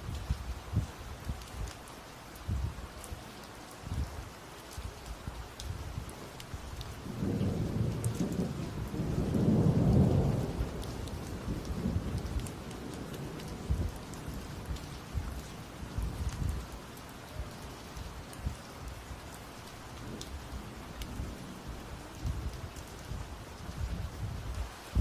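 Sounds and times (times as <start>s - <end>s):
raindrops ticking: 0.0s - 25.0s
thunder rumbling: 7.0s - 19.2s.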